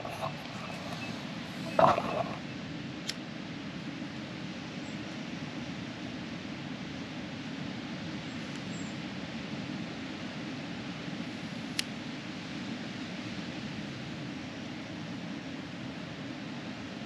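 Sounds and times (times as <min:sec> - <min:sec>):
steady rushing noise: 0:00.0 - 0:02.6.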